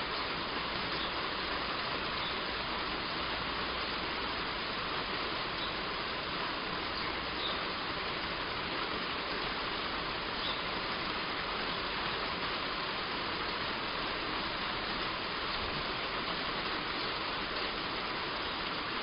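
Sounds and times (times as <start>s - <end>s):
heavy rain on a roof: 0.0s - 19.0s
faint bird chirps: 5.6s - 5.8s, 7.0s - 7.6s, 10.4s - 10.7s.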